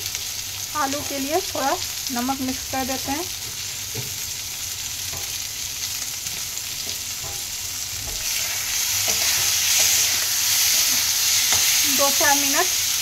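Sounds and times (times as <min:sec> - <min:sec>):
potatoes sizzling in oil: 0:00.0 - 0:13.0
steel spatula stirring: 0:06.8 - 0:12.4.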